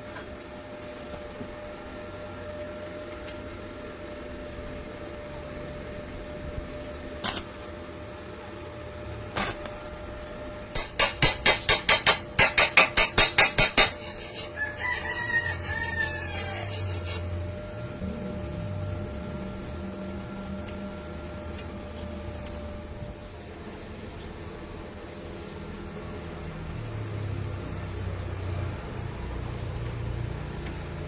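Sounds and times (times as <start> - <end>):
sharp strokes: 13.3 - 17.3
rooster crowing: 14.4 - 17.2.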